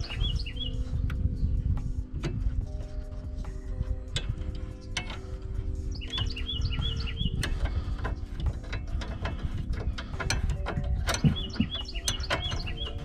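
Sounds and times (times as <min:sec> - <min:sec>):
ratchet wrench clicking: 0:03.8 - 0:13.0.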